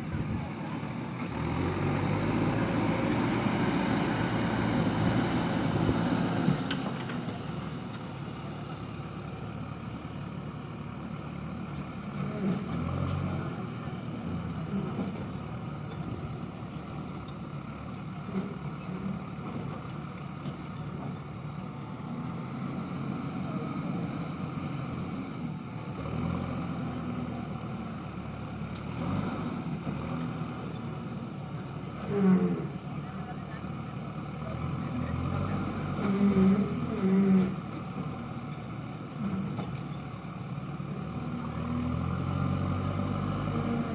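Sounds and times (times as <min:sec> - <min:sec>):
diesel engine under load: 0:00.0 - 0:43.9.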